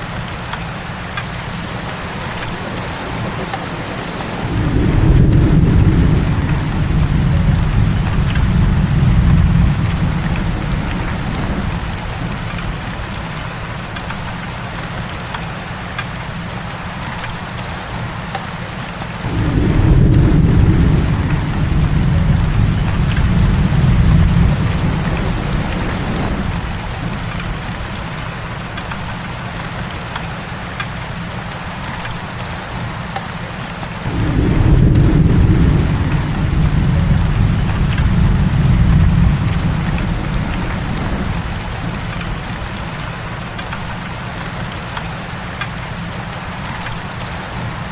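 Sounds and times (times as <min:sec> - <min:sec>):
heavy rain falling: 0:00.0 - 0:47.9
thunder rolling: 0:01.8 - 0:13.9, 0:19.2 - 0:29.2, 0:34.0 - 0:45.0.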